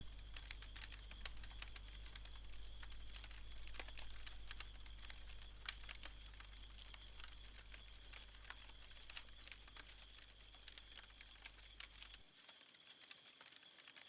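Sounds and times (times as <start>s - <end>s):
low steady hum: 0.0s - 12.2s
faint crackling clicks: 0.0s - 14.0s.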